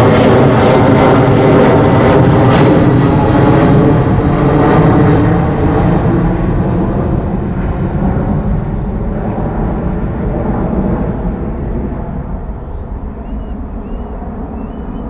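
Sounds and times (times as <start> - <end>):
jet engines rumbling at takeoff: 0.0 - 15.0
faint chirps: 12.6 - 15.0.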